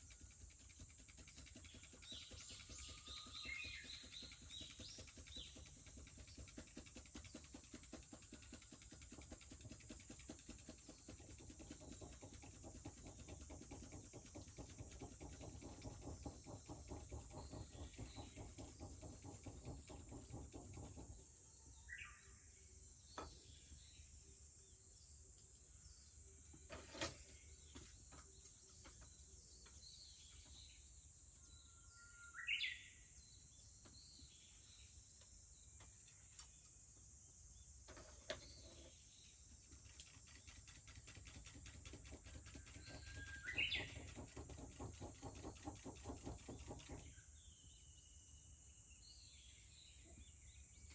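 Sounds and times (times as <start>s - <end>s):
bush warbler singing: 1.1s - 8.2s, 38.3s - 50.9s.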